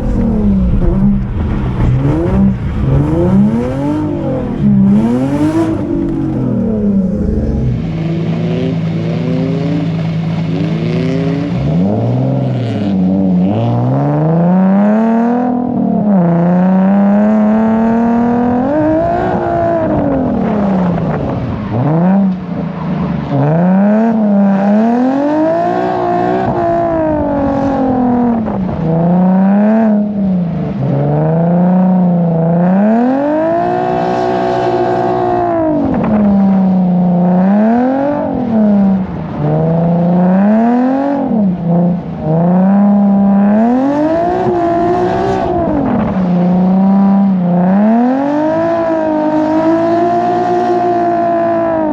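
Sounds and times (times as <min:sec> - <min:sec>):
car engine revving hard: 0:00.0 - 0:51.9.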